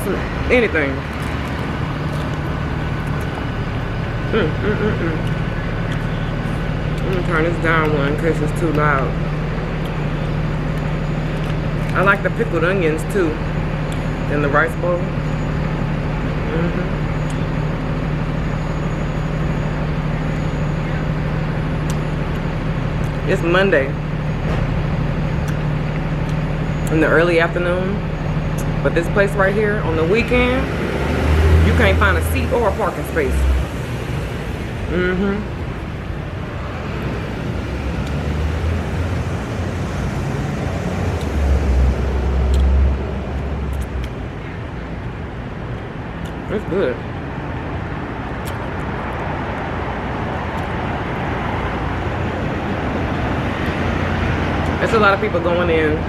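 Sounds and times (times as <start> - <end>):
city traffic noise: 0.0 - 56.0
constant low hum: 0.0 - 56.0
passing vehicle engine rumble: 0.0 - 56.0.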